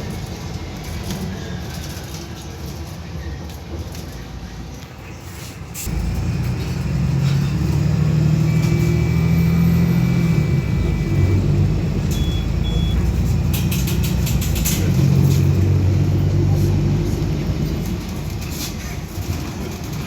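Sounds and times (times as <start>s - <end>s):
bus engine low rumble: 4.3s - 20.0s
short high beeps: 12.1s - 13.1s
rattling clicks: 12.9s - 15.7s.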